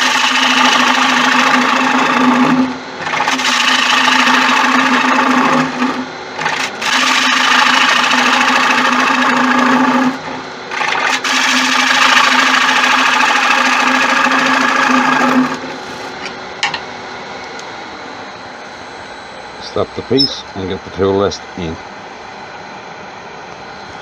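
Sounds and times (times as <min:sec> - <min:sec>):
lathe tool cutting wood: 0:00.0 - 0:16.3
lathe running: 0:00.0 - 0:24.0.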